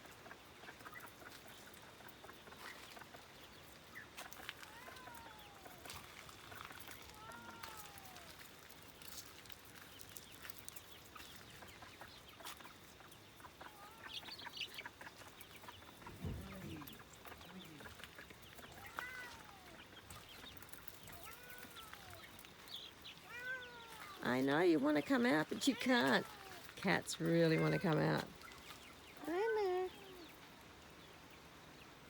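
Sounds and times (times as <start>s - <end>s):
chickens clucking softly: 0.0s - 24.2s
chicken drawn-out calls: 11.0s - 24.2s.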